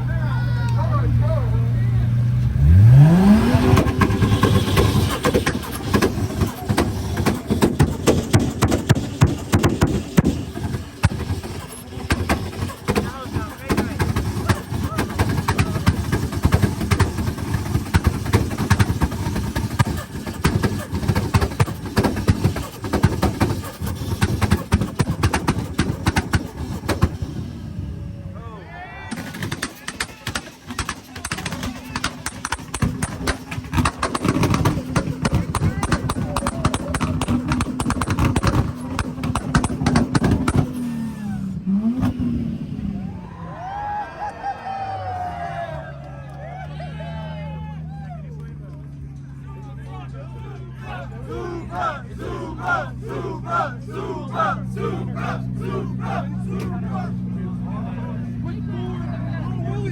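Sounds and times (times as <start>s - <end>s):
car engine revving hard: 2.1s - 28.1s, 29.2s - 43.2s, 51.3s - 57.7s
loud exhaust pops and crackles: 2.1s - 28.3s, 29.1s - 43.1s, 47.6s - 50.7s, 52.2s - 59.8s.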